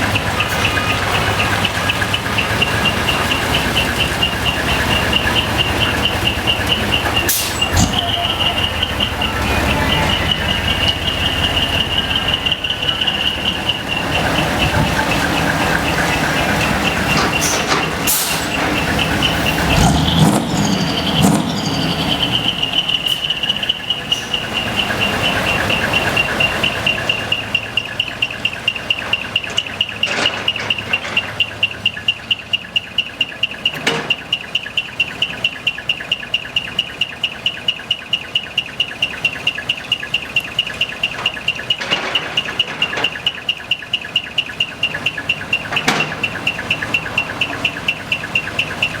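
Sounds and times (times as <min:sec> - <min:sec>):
high chirping muffler: 0:00.0 - 0:30.0, 0:42.5 - 0:49.0
diesel truck idling: 0:00.0 - 0:49.0.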